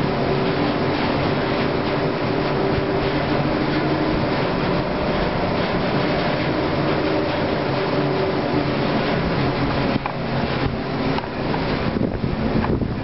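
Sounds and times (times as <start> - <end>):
cable car ropes rumbling: 0.0 - 13.0.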